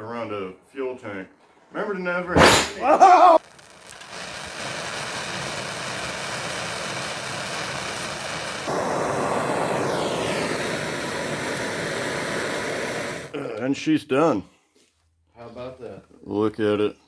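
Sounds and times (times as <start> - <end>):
blowtorch flame hissing: 2.4 - 13.4.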